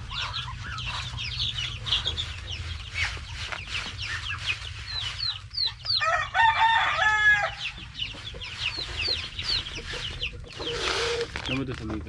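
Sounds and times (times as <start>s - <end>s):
chicks peeping: 0.0s - 12.0s
rooster crowing: 6.0s - 7.8s.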